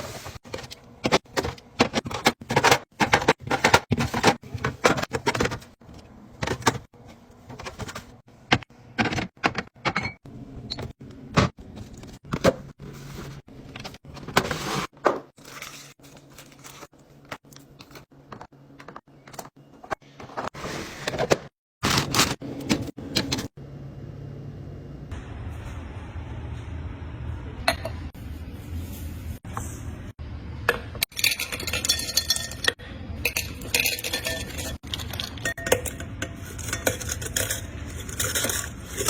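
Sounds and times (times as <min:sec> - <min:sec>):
food packaging clicking and knocking: 0:00.4 - 0:05.8.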